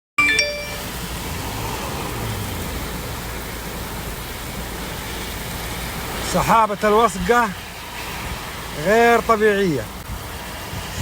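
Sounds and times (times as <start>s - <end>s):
short pitched tone: 0.2s - 0.9s
heavy rain: 0.2s - 11.0s.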